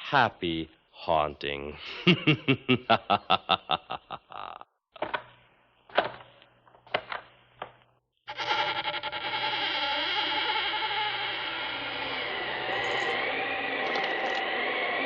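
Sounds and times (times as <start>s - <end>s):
whirring drone: 11.8s - 15.0s.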